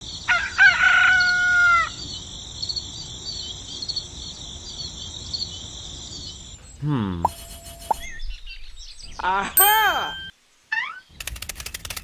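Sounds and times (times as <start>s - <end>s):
insects chirping: 0.0s - 10.6s
rooster crowing: 0.3s - 2.0s.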